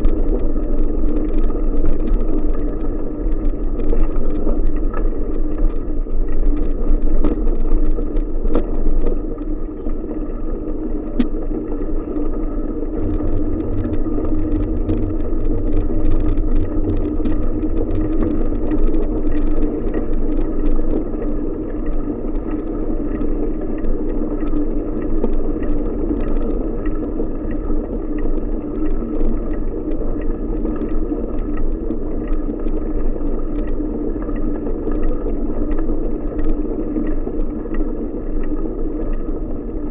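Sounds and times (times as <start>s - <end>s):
bicycle rolling rumble: 0.0s - 39.9s
small rattles and clicks: 0.0s - 39.9s
deep hum: 9.1s - 24.5s.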